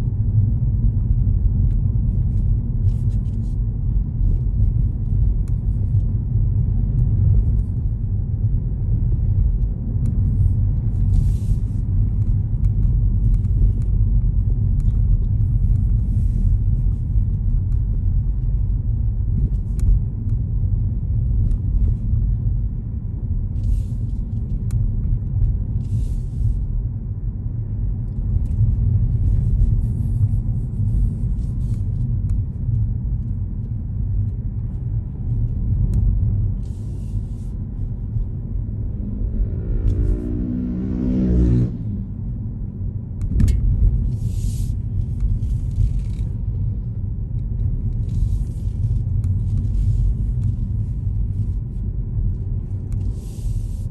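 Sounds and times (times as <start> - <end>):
car road and engine rumble: 0.0 - 53.9.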